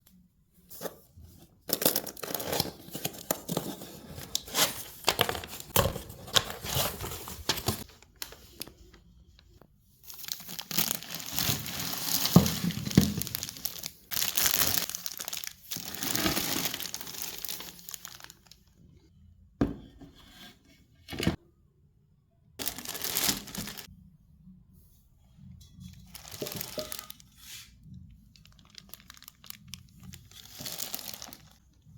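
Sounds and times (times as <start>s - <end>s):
packaging tearing and crinkling: 10.1s - 18.6s, 22.6s - 23.9s, 28.4s - 31.6s.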